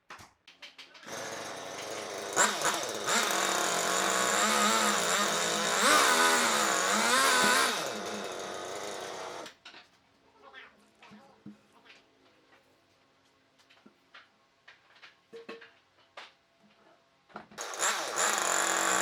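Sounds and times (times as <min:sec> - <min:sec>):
power tool motor running: 0:01.1 - 0:09.5, 0:17.6 - 0:19.0.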